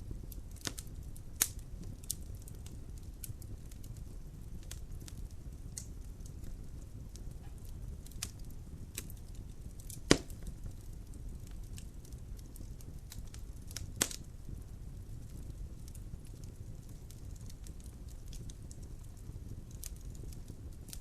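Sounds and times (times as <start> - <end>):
fire rumbling: 0.0 - 21.0
small crackles of burning logs: 0.0 - 21.0
loud sharp pops: 10.0 - 10.5.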